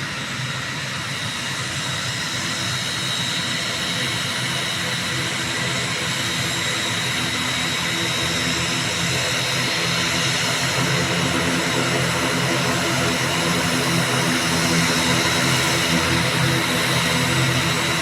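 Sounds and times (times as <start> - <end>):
turboprop engines droning: 0.0 - 18.0.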